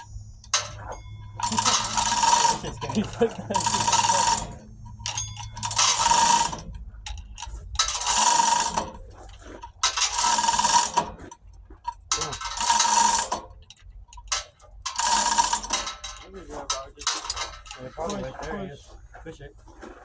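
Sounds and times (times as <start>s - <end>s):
mechanical ratcheting strokes: 0.0s - 11.3s, 12.1s - 13.5s, 14.2s - 16.1s.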